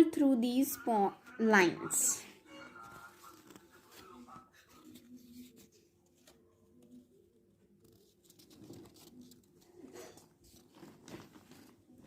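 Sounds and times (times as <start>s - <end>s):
paper rustling and crinkling: 2.6s - 12.0s.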